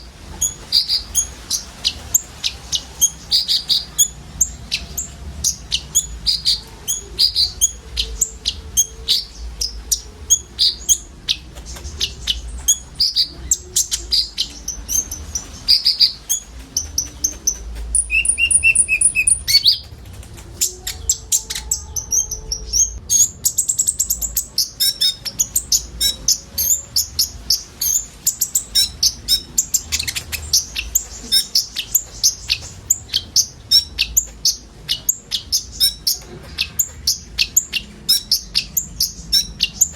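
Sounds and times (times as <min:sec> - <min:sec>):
birds chirping: 0:00.0 - 0:39.9
bird whistles: 0:17.9 - 0:19.8
rising bird trill: 0:18.0 - 0:19.8.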